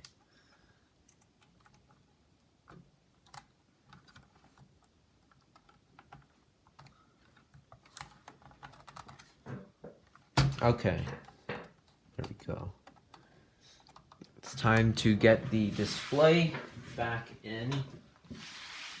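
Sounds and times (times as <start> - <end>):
laptop keyboard clicks and taps: 2.7 - 9.4.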